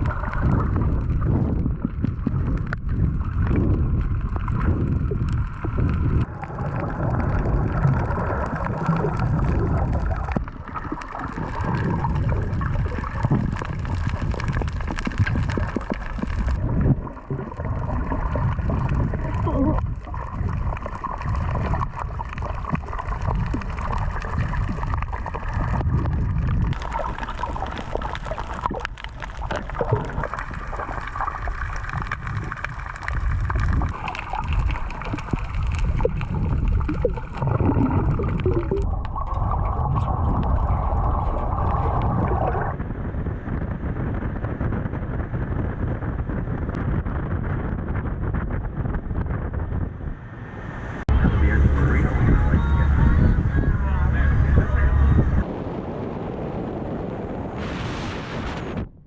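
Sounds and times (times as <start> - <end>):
water gurgling and sloshing: 0.0 - 42.9
steady low rumble: 0.0 - 59.0.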